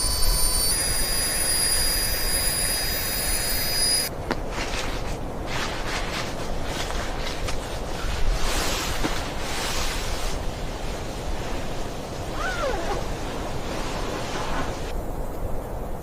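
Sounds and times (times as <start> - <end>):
faint squeak sliding down: 0.0 - 4.1.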